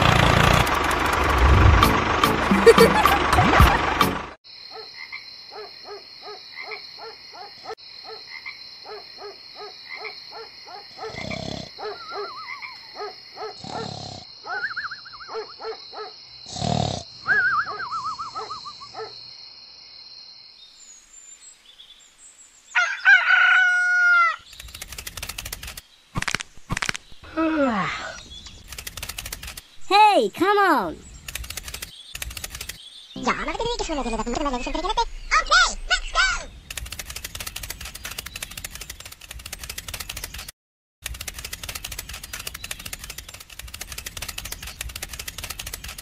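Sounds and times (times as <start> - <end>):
frogs croaking: 4.5 - 20.6
warbling bird calls: 14.4 - 16.1, 17.2 - 19.1, 30.6 - 40.5, 41.4 - 46.0.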